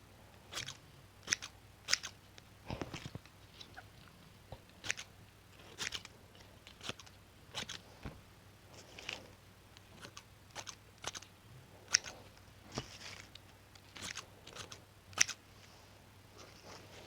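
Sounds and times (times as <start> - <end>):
scissors snipping: 0.5 - 3.3, 4.8 - 5.1, 5.7 - 7.8, 10.0 - 11.3, 11.9 - 12.1, 12.8 - 15.4.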